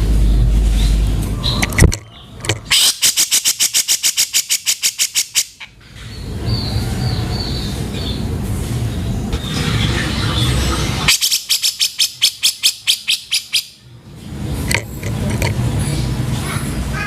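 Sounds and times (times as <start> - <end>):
rumbling background: 0.0 - 2.8, 13.8 - 17.0
bird chattering call: 1.4 - 5.7, 10.2 - 13.8.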